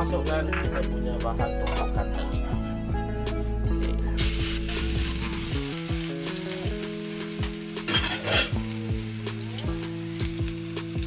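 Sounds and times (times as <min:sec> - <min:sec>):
paste sizzling in hot oil: 0:04.2 - 0:11.0.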